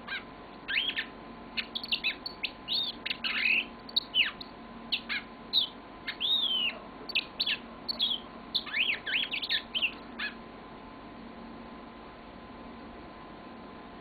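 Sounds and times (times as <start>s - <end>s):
canary singing: 0.0s - 10.5s.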